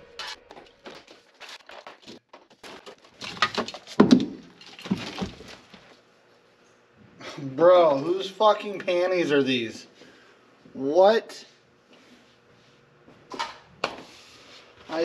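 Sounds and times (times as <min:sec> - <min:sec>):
objects clicking and rustling: 0:00.1 - 0:06.0.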